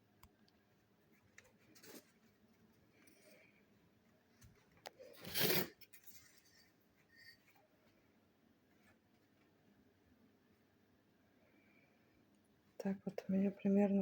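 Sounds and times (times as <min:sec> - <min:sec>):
rough scrape of handling: 0:01.6 - 0:02.4, 0:05.0 - 0:07.6.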